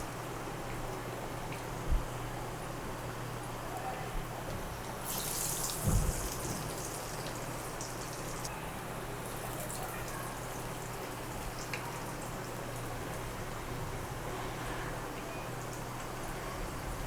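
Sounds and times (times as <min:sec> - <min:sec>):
hot oil sizzling: 0:05.0 - 0:08.5.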